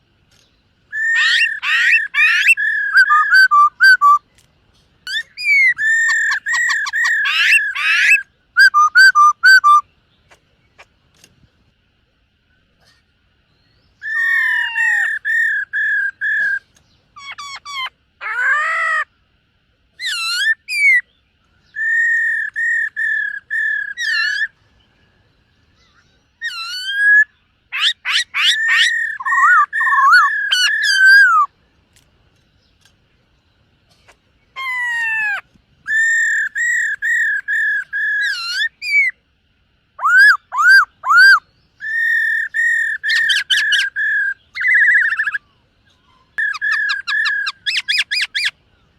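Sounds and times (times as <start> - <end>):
bird singing whistled phrases: 0.9 - 4.3, 5.0 - 9.9, 13.6 - 18.5, 20.0 - 24.5, 25.8 - 31.5, 34.6 - 39.2, 40.0 - 45.4, 46.1 - 48.5.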